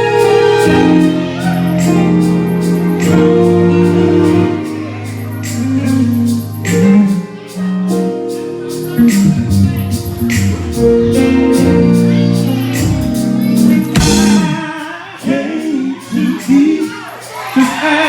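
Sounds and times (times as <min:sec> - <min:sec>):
gospel band playing held chords: 0:00.0 - 0:18.0
steady drum beat: 0:09.0 - 0:15.0.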